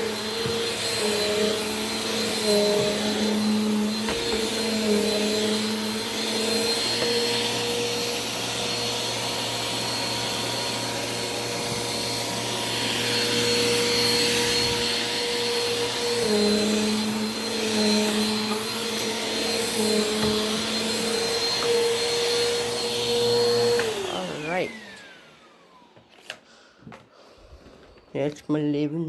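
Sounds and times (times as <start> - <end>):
vacuum cleaner running on carpet: 0.0 - 26.3.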